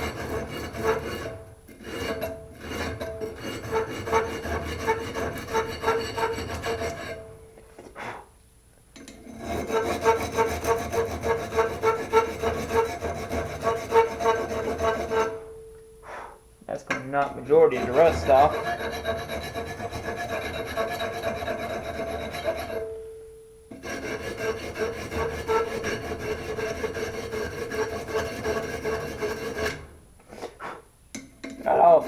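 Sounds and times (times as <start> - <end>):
sandpaper scrubbing metal: 17.4 - 22.8.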